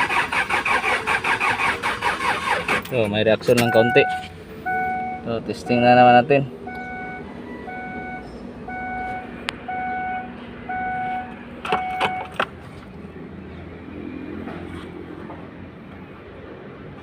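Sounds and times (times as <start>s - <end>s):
electronic beeps: 3.6s - 5.8s, 6.7s - 12.3s.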